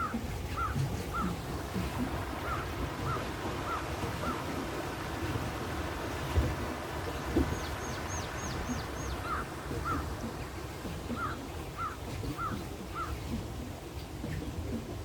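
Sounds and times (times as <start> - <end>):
birds calling: 0.0 - 4.6, 6.9 - 13.4
low background rumble: 0.0 - 15.0.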